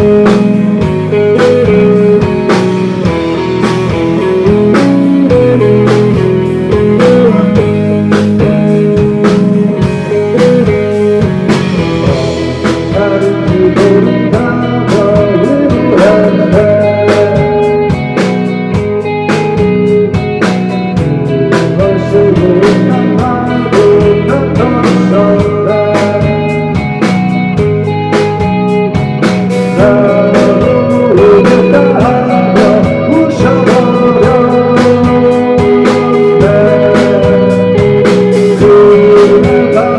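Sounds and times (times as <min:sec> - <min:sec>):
guitar with bending notes: 0:00.0 - 0:39.9
rock band playing live: 0:00.0 - 0:39.9
steady drum beat: 0:00.0 - 0:39.9.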